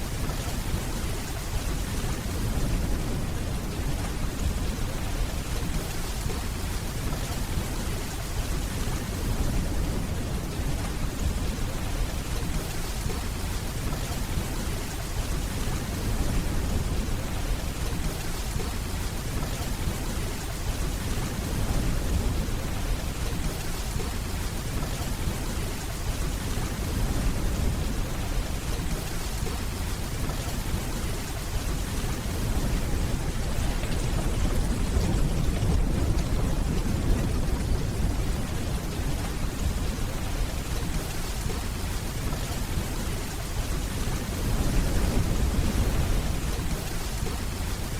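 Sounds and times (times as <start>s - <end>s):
steady rainfall: 0.0s - 47.9s
distant thunder rumble: 26.2s - 47.8s.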